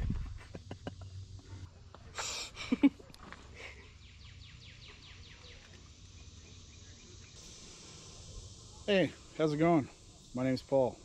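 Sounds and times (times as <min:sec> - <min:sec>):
bird singing descending notes: 0:03.8 - 0:07.4.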